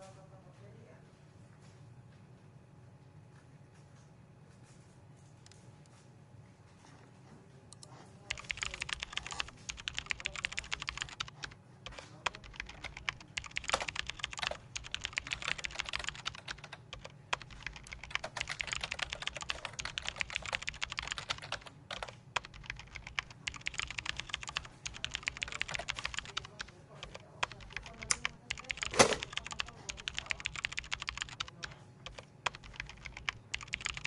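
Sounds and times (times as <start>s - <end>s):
faint low hum: 0.0s - 34.0s
computer keyboard typing: 7.7s - 34.0s.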